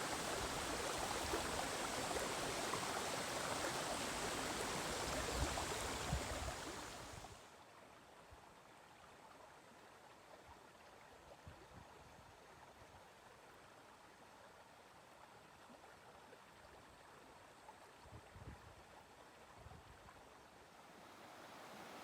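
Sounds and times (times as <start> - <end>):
stream rushing over rocks: 0.0 - 7.5, 20.9 - 22.0.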